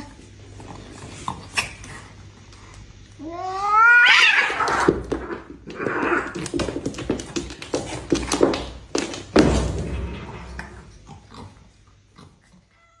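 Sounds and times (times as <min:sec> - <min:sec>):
cats fighting: 0:00.5 - 0:09.4
scuffling and knocks: 0:04.5 - 0:11.0.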